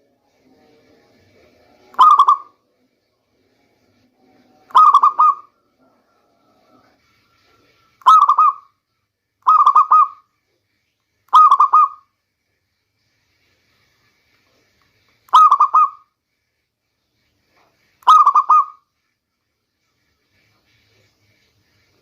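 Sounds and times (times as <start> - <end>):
dove cooing: 2.0 - 2.5, 4.7 - 5.6, 9.5 - 10.2.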